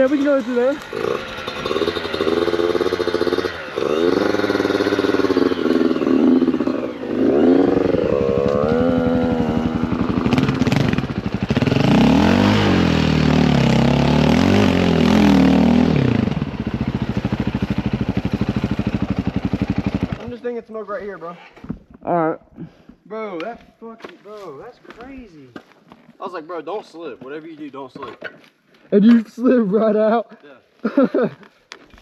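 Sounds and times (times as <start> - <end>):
dirt bike engines revving: 0.0 - 20.4.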